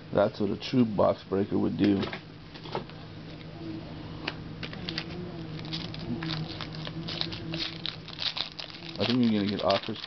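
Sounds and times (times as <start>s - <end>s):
faint low hum: 0.0s - 10.0s
cards clicking and rustling: 5.7s - 10.0s.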